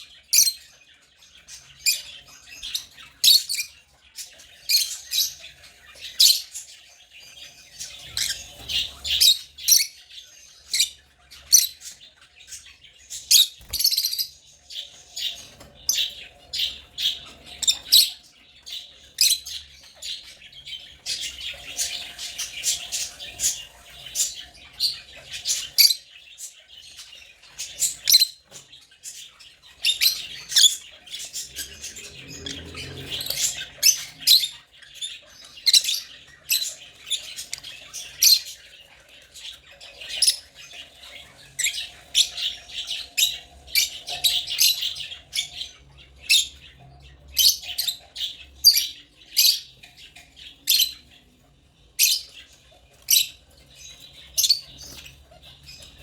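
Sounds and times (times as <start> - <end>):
lovebirds chirping: 0.0 - 56.0.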